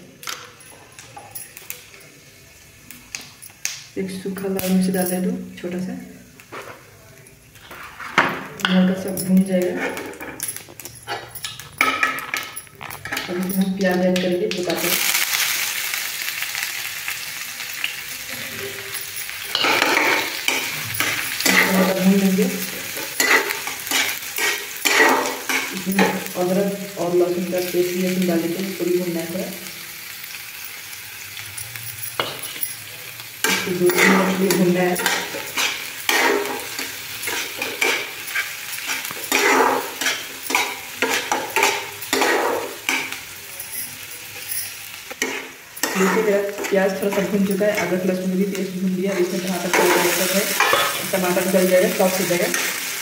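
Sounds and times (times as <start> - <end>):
onion sizzling in a pan: 0.0 - 53.0
steel spatula scraping pan: 9.6 - 10.4, 22.8 - 26.3, 33.4 - 43.2, 44.4 - 53.0.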